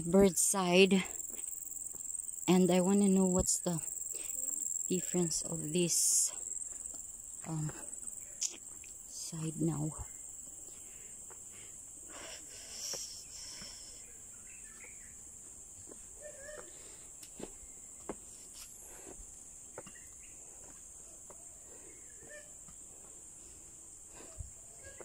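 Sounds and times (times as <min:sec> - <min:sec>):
insects chirping drone: 0:00.0 - 0:25.0
faint chirps: 0:12.1 - 0:15.2.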